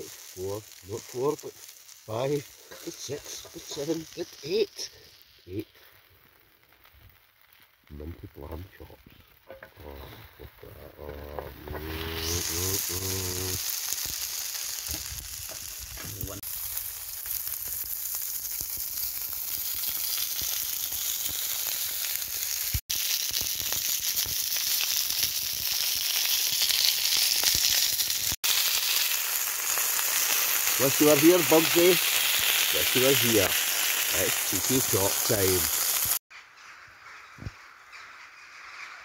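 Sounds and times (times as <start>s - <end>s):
meat sizzling in a hot pan: 0.0s - 5.7s, 11.4s - 36.2s.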